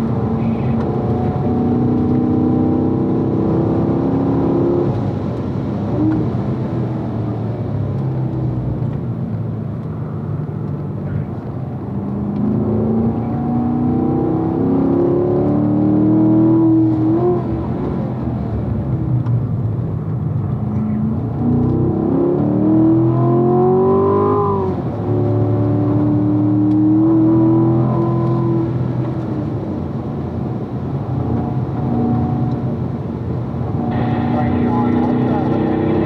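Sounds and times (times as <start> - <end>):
car engine accelerating: 0.0 - 36.0
gear upshifts: 33.7 - 36.0.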